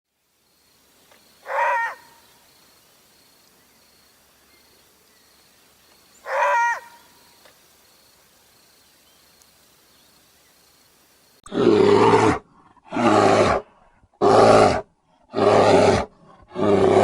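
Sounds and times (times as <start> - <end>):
animal calls: 1.4 - 2.4, 6.2 - 7.2.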